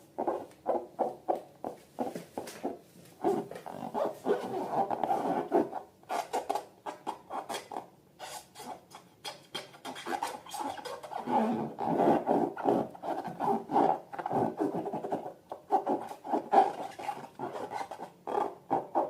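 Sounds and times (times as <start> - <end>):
rubber balloons squeaking: 0.2 - 8.8, 9.4 - 19.0.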